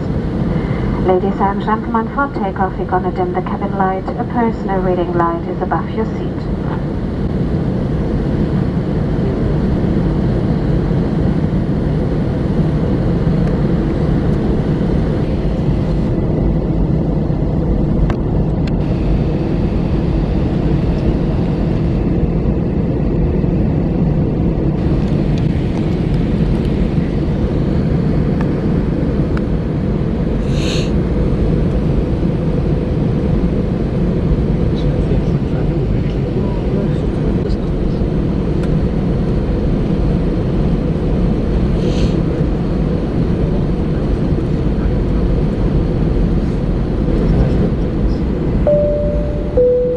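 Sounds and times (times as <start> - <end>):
airliner cabin engine rumble: 0.0 - 49.9
brief high tone: 48.7 - 49.9.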